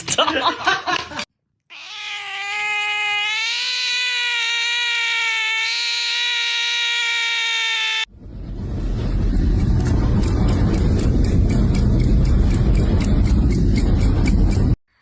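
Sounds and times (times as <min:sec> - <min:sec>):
cat yowling: 0:01.7 - 0:08.1.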